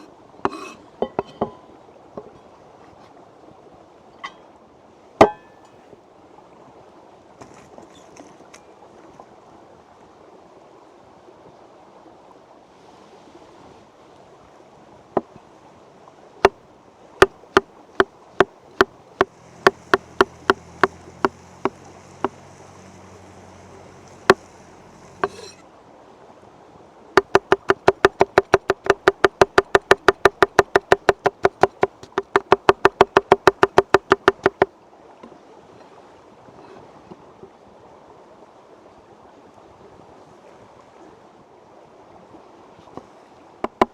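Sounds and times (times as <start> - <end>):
knife chopping on wooden board: 19.6 - 21.4, 25.2 - 25.6, 27.2 - 34.7, 43.7 - 43.9
stream rushing: 27.2 - 35.0.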